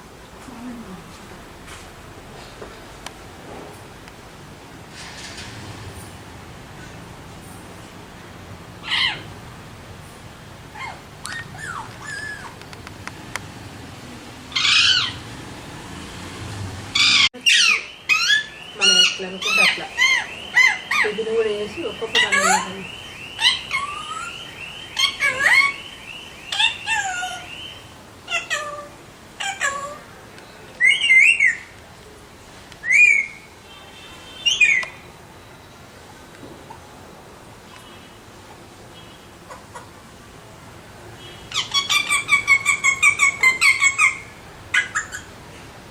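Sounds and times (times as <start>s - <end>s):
parakeet calling loudly: 8.8s - 9.3s, 10.7s - 12.6s, 14.5s - 15.3s, 17.0s - 30.1s, 41.2s - 45.4s.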